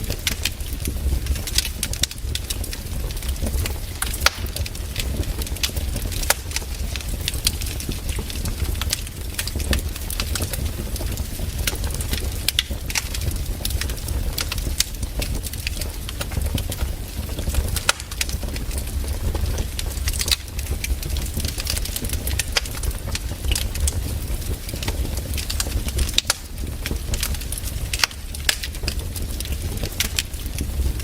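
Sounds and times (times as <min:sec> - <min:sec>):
fireplace fire crackling: 0:00.0 - 0:31.0.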